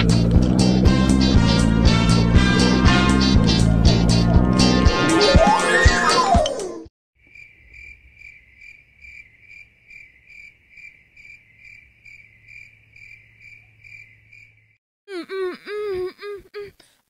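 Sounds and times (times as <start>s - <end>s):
cricket chirping: 7.2s - 14.8s.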